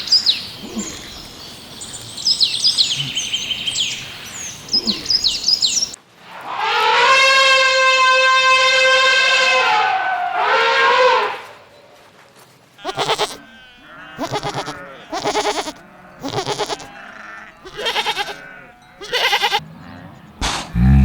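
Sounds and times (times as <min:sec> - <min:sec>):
goats bleating: 0:12.8 - 0:20.0.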